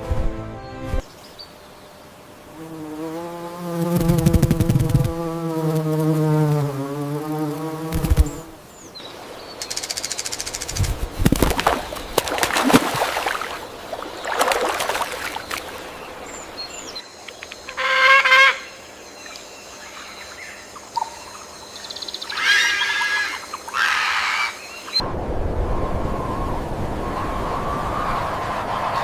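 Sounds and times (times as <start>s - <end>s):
birds calling: 7.6s - 25.0s.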